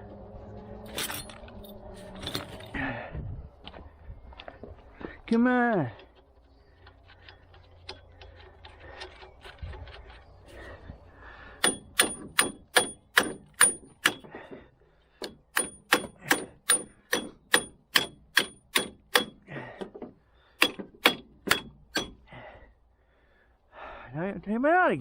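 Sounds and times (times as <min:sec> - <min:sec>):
hammer blows on metal: 0:11.6 - 0:14.3.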